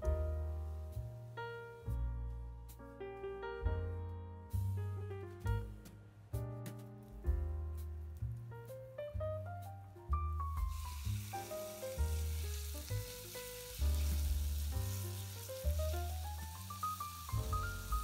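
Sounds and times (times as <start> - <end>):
background music with bass line: 0.0 - 18.0
chicken sizzling in hot oil: 10.6 - 18.0.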